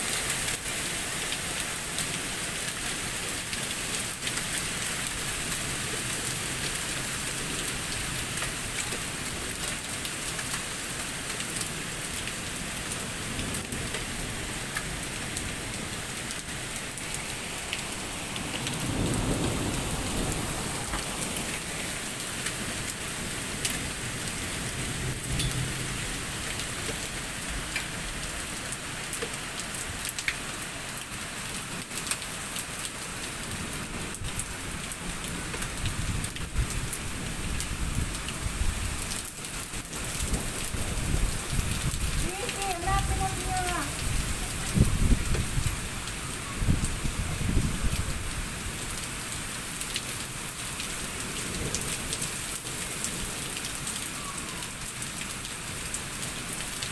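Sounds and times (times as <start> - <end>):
heavy rain: 0.0 - 56.9
raindrops ticking on hard surfaces: 0.0 - 56.9
thunder rumble: 17.8 - 22.1.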